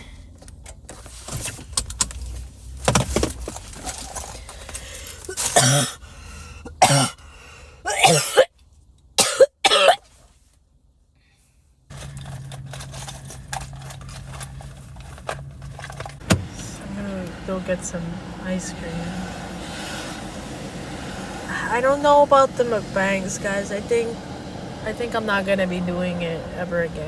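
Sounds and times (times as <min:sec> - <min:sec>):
person coughing: 0:05.3 - 0:06.0, 0:06.7 - 0:07.2, 0:07.9 - 0:08.5, 0:09.2 - 0:10.0
steady low hum: 0:11.0 - 0:27.0.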